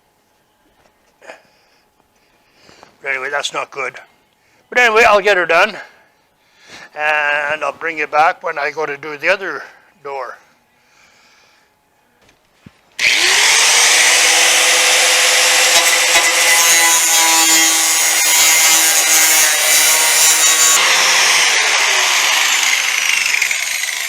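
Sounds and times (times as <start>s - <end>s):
angle grinder grinding steel: 13.0s - 24.0s
grinder disc winding down: 13.0s - 24.0s.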